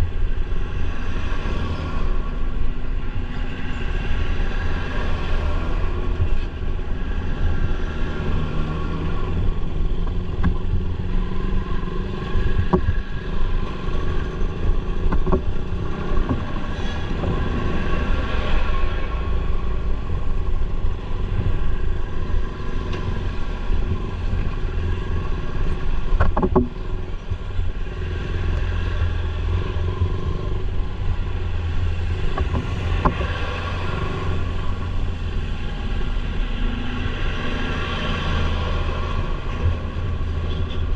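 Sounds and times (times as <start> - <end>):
road noise: 0.0 - 40.9
sharp knocks or rattles: 26.2 - 26.8.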